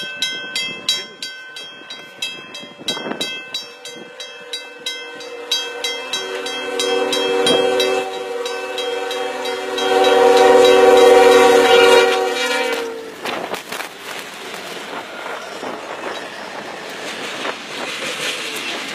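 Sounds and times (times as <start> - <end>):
train horn chord: 3.8 - 13.2.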